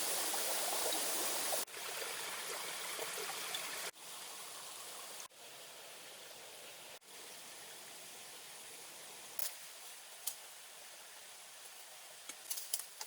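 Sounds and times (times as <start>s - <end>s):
steady hissing noise: 3.8s - 13.0s.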